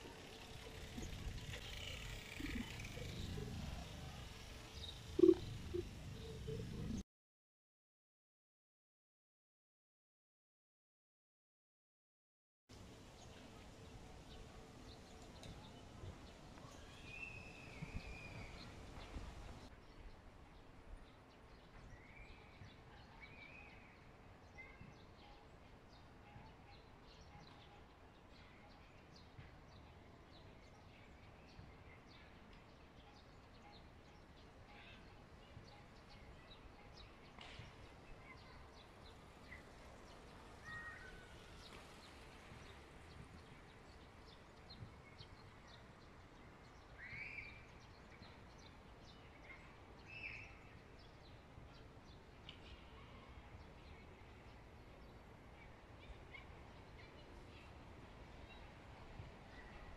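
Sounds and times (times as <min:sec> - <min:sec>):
faint bird chirps: 0:04.8 - 0:07.0, 0:46.9 - 0:51.8.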